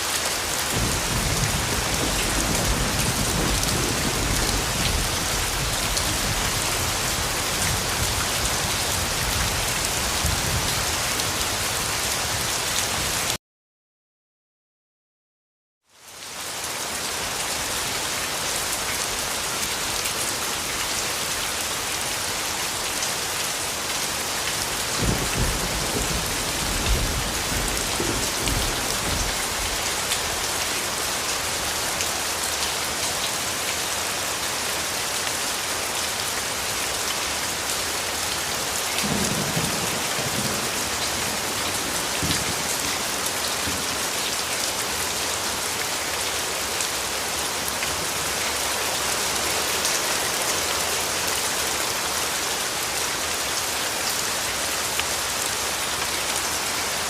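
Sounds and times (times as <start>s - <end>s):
heavy rain falling: 0.0s - 13.4s, 16.0s - 57.0s
thunder rumbling: 0.7s - 8.1s, 25.0s - 29.7s.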